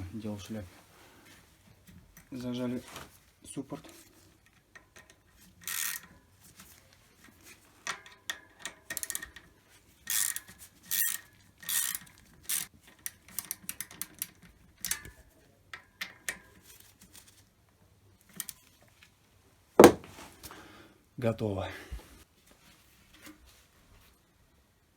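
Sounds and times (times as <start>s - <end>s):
quick runs of ratchet clicks: 5.6s - 6.1s, 10.1s - 12.7s.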